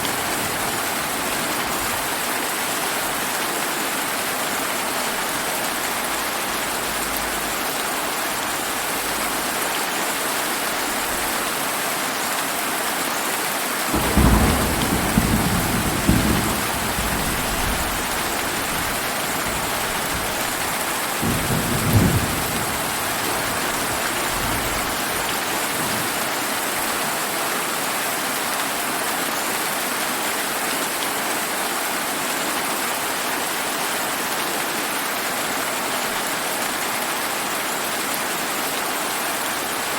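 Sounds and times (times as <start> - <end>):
steady rain falling: 0.0 - 39.9
thunder rumble: 13.9 - 26.2.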